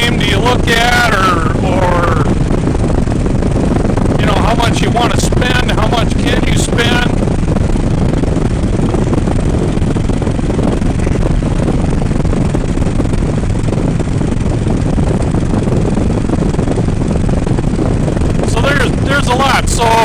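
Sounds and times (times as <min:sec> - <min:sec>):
motorcycle engine: 0:00.0 - 0:20.0
wind rush over microphone: 0:00.0 - 0:20.0.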